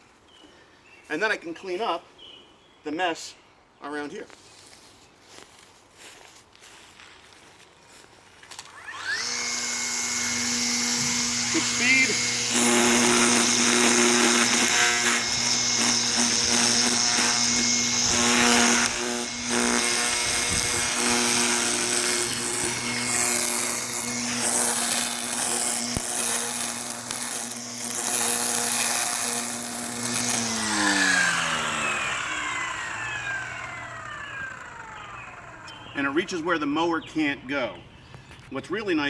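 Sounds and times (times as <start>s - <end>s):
string trimmer whining: 8.5s - 36.5s.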